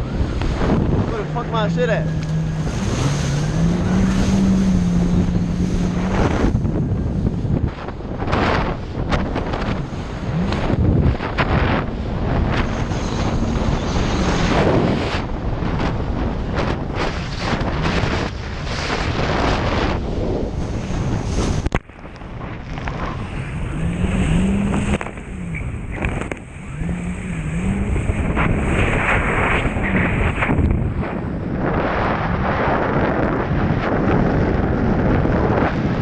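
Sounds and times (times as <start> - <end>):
water rushing: 0.0 - 15.5
jet ski engine running: 0.0 - 36.0
wind buffeting microphone: 0.0 - 36.0.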